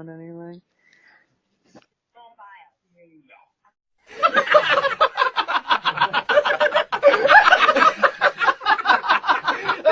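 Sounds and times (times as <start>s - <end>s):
person laughing hard: 4.2s - 9.9s.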